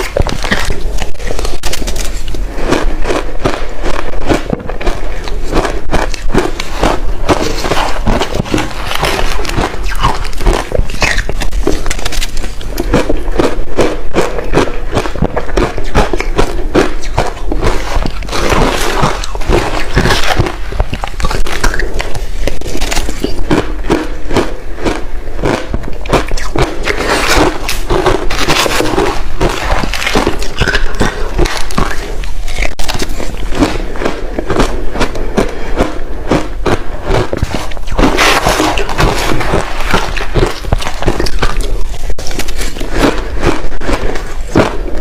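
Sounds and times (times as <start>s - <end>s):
chewing crushed ice: 0.0s - 45.0s.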